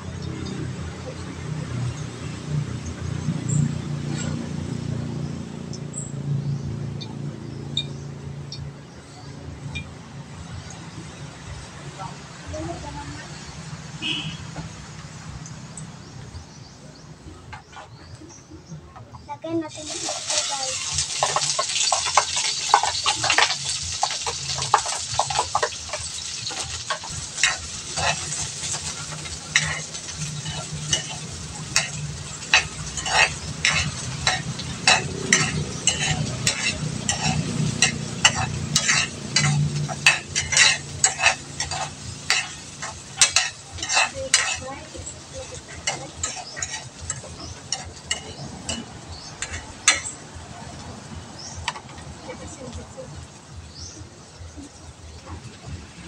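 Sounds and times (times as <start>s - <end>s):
food sizzling in oil: 19.6s - 56.0s
spatula scraping a wok: 19.8s - 50.2s.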